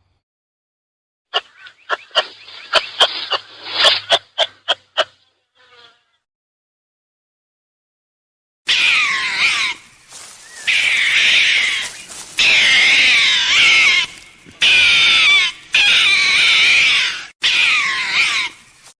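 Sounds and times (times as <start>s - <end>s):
animal shrill wavering cries: 8.7s - 18.7s.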